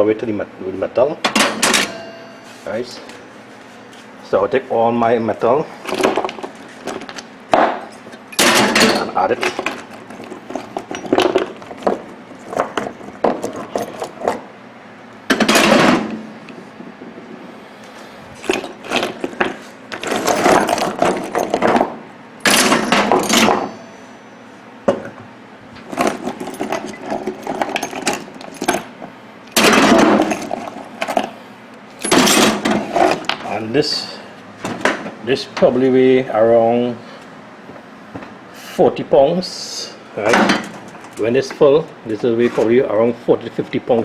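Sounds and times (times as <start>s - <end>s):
scrap metal clanking into bin: 1.3s - 2.9s, 5.8s - 7.3s, 7.9s - 14.5s, 15.3s - 16.2s, 18.4s - 24.0s, 25.8s - 31.4s, 32.0s - 33.6s, 40.2s - 42.7s.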